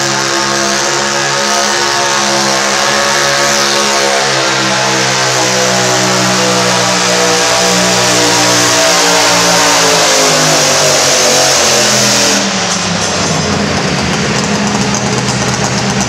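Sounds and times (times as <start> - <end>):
tractor engine running under load: 12.4 - 16.0.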